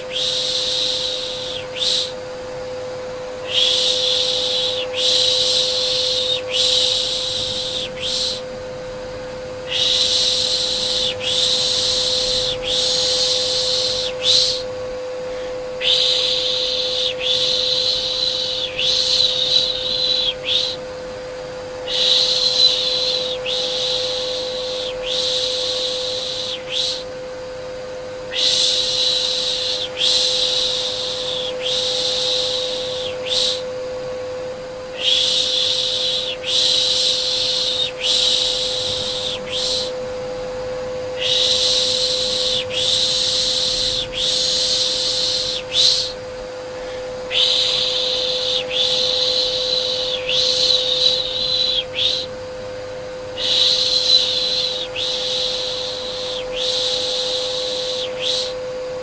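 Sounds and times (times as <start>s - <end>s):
person shushing: 0.0s - 2.2s, 3.4s - 8.5s, 9.7s - 20.8s, 35.0s - 40.0s, 41.2s - 52.3s
vacuum cleaner humming: 0.0s - 59.0s.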